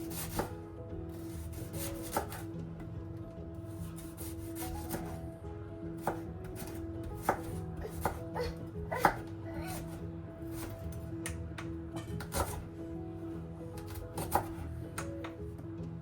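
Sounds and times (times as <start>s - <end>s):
knife cutting on cutting board: 0.0s - 0.5s, 1.2s - 2.5s, 3.8s - 5.2s, 6.0s - 10.9s, 12.2s - 12.6s, 13.8s - 14.7s.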